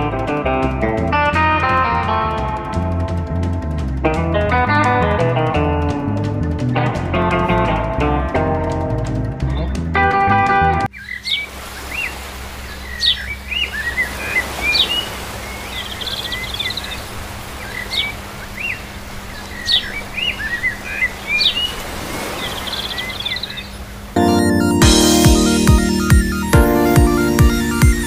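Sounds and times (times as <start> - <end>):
birds chirping and trilling: 9.2 - 10.0, 10.9 - 28.0.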